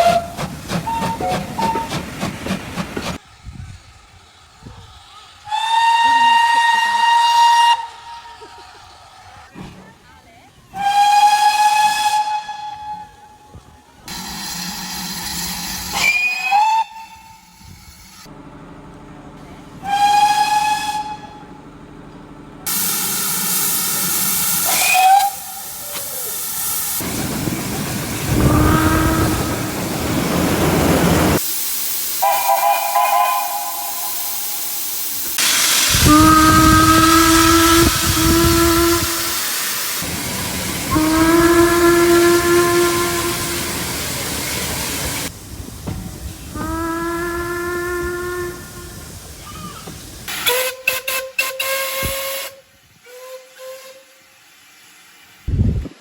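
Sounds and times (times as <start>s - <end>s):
steam locomotive whistle blasts: 0.0s - 2.0s, 5.5s - 8.6s, 10.7s - 13.5s, 14.1s - 17.8s, 19.8s - 21.5s, 22.7s - 27.0s, 28.3s - 29.8s, 32.2s - 44.6s, 46.5s - 49.7s, 50.3s - 54.4s
steam hiss: 0.0s - 9.9s, 14.1s - 18.3s, 22.7s - 56.0s
train noise: 0.0s - 56.0s.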